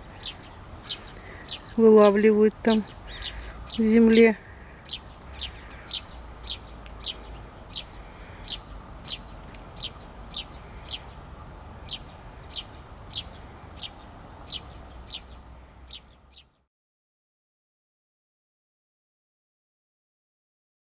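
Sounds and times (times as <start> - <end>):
low steady rumble: 0.0 - 16.6
songbird chirping: 0.0 - 16.7.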